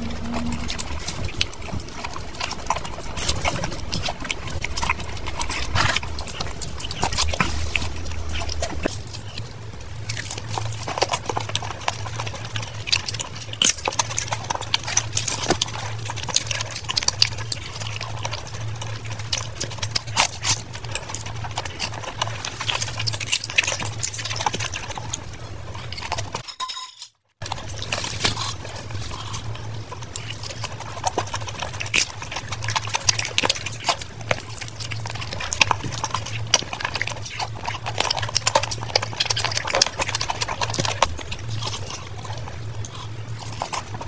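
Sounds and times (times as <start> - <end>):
wet chewing and lip-smacking: 0.0 - 26.4, 27.4 - 44.0.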